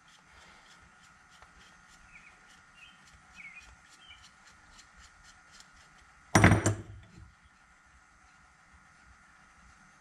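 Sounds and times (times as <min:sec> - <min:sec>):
faint bird chirps: 0:02.0 - 0:04.3.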